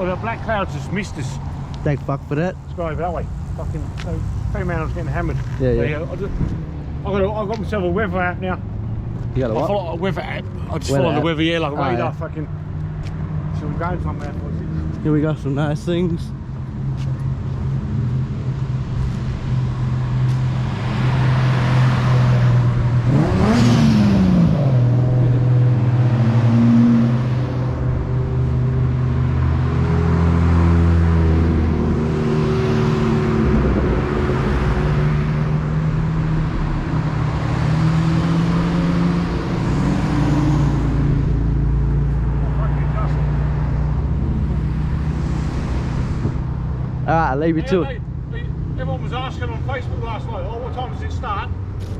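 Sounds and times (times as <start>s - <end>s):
car engines idling: 0.0s - 20.9s, 30.9s - 51.9s.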